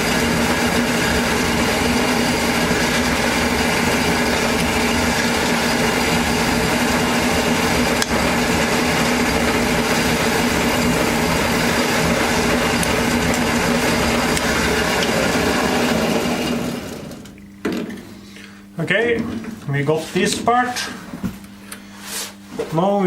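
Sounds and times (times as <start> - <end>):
electric power tool running: 0.0 - 17.4.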